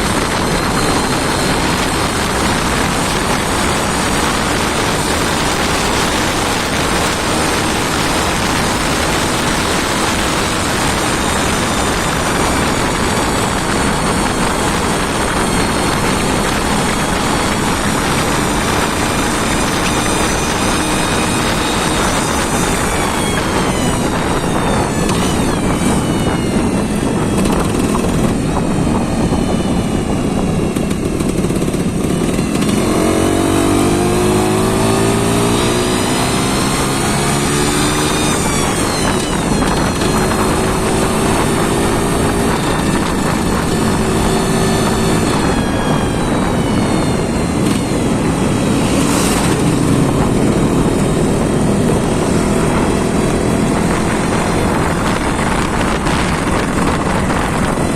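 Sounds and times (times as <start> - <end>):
engine revving loudly: 31.3 - 57.9.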